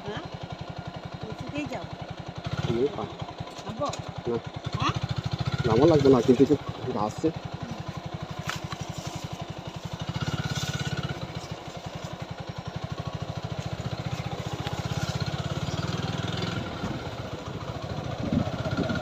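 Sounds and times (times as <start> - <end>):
motorcycle engine thudding: 0.6 - 19.0.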